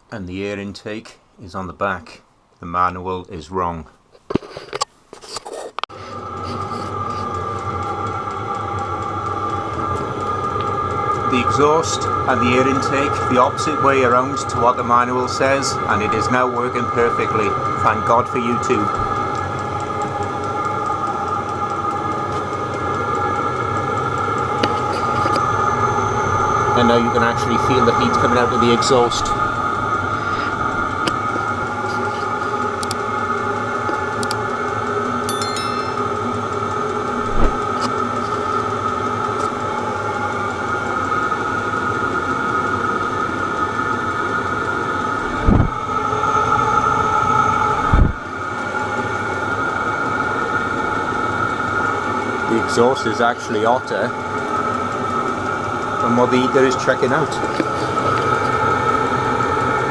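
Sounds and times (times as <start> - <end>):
parking heater blower whine: 5.9 - 35.3, 35.9 - 59.9
heater click: 6.2 - 13.4, 32.4 - 33.1, 33.8 - 34.4
rushing burn of heater: 45.0 - 46.1.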